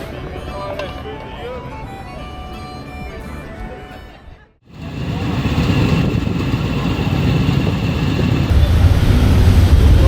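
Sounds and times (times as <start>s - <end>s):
motorcycle engine running: 4.7s - 8.6s.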